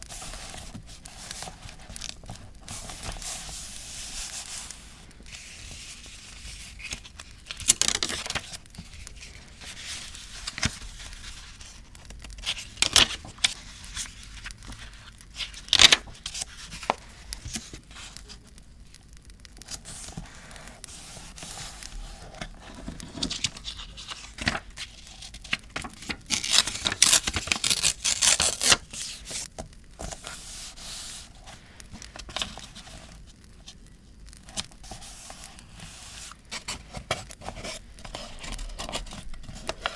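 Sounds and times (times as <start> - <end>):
paper rustling and crinkling: 0.0 - 18.7, 19.6 - 33.8, 34.4 - 39.9
paper tearing: 26.3 - 29.4.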